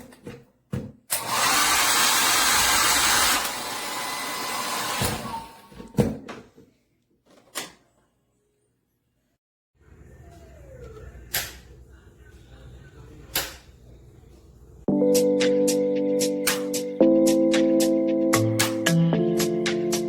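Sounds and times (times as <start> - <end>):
hair dryer blowing air: 1.2 - 5.6.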